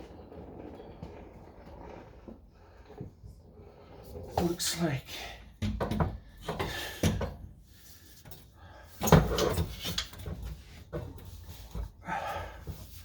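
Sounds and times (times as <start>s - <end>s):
metallic clunks and scrapes: 8.2s - 12.0s.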